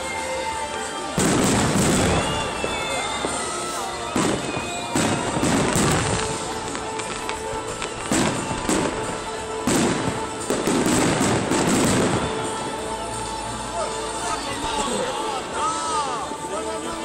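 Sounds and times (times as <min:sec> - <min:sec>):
fireworks crackling: 0:00.0 - 0:17.0
fireworks bangs: 0:01.1 - 0:12.9.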